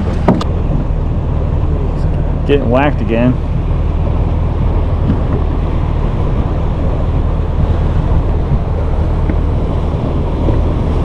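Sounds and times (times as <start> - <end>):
constant low hum: 0.0 - 11.0
water noise: 0.0 - 11.0
wind buffeting microphone: 0.0 - 11.0.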